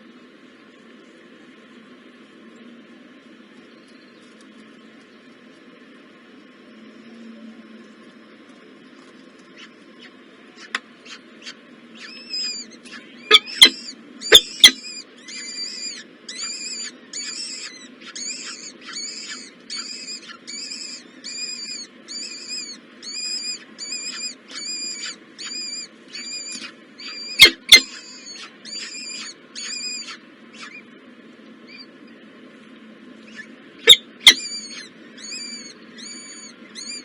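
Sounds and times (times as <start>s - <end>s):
nestlings begging calls: 9.4s - 31.0s, 31.6s - 32.2s, 33.2s - 37.0s.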